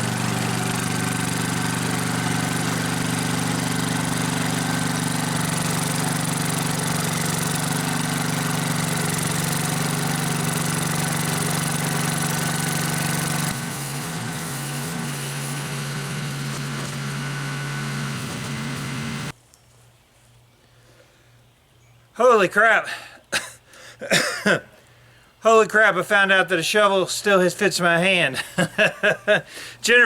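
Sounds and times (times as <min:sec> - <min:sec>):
walk-behind tractor engine running: 0:00.0 - 0:19.4.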